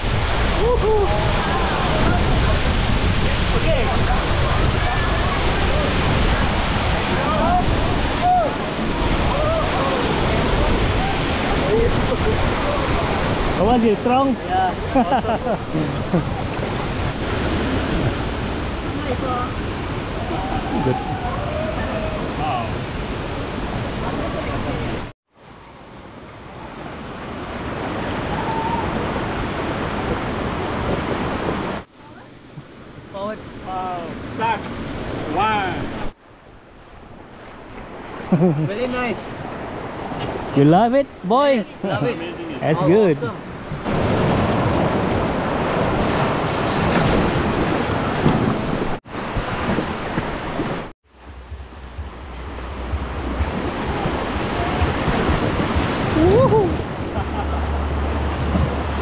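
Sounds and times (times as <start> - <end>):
wind buffeting microphone: 0.0 - 25.1, 43.3 - 57.2
rushing river rapids: 0.0 - 32.5, 41.7 - 59.0.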